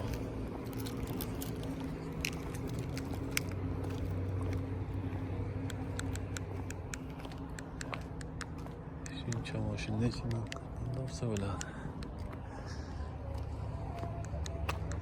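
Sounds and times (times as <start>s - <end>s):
low mechanical hum: 0.0s - 15.0s
light clicks and taps: 5.6s - 12.4s.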